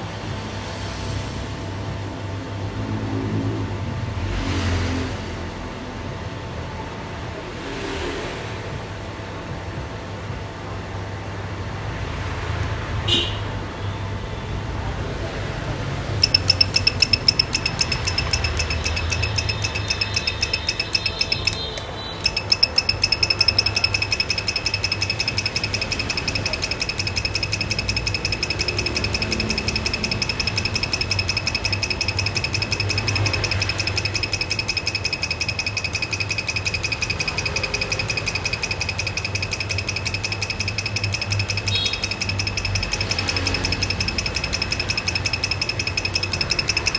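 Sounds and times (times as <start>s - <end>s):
fast mechanical clatter with whine: 16.2s - 46.9s.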